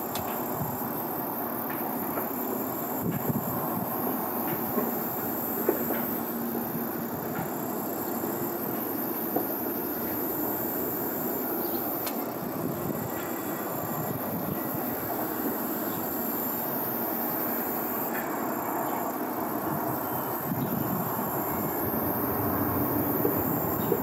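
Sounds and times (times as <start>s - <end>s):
jet engines running: 0.0s - 24.0s.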